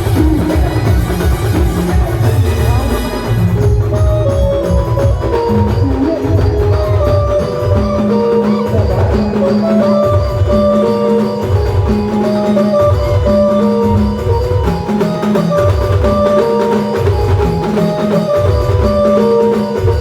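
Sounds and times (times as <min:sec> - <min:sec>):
live band melody: 0:00.0 - 0:20.0
repeating drum beat: 0:00.0 - 0:20.0.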